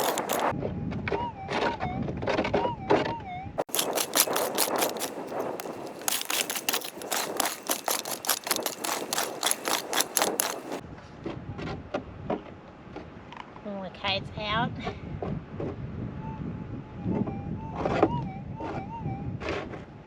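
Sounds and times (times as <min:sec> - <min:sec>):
pick digging into stony ground: 0:00.0 - 0:00.5, 0:03.6 - 0:10.8.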